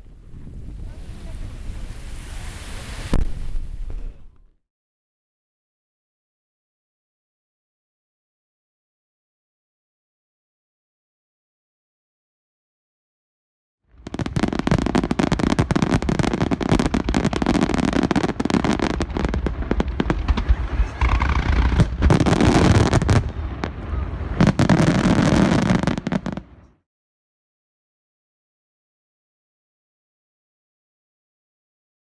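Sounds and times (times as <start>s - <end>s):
fireworks crackling: 0.0s - 4.3s, 14.0s - 26.7s.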